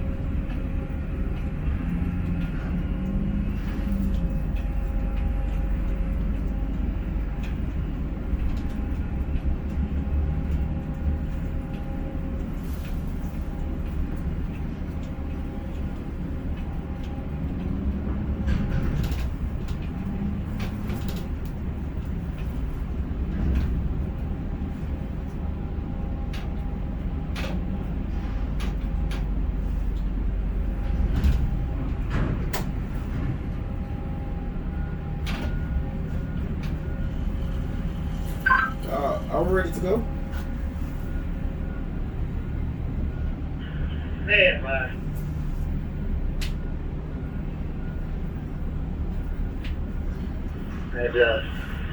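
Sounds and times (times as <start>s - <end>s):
machinery clicks and clanks: 0.0s - 25.5s, 26.2s - 34.0s
crane machinery droning: 0.0s - 51.9s.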